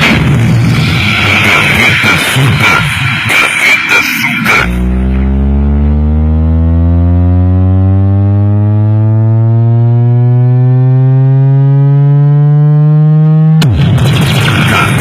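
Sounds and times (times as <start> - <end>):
loud music: 0.0 - 8.0, 13.6 - 15.0
bass tone sweep: 0.0 - 15.0.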